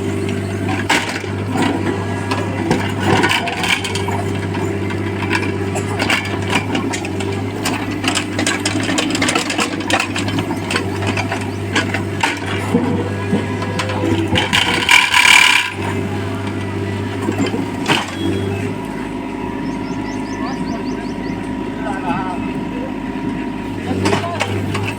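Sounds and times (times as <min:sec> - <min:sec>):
diesel engine running: 0:00.0 - 0:24.9
metallic clanks and rattles: 0:00.2 - 0:18.3.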